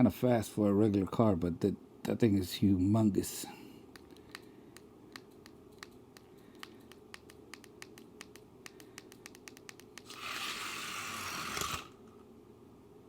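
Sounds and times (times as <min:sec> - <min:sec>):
toy truck rolling and scraping: 0:10.1 - 0:12.0.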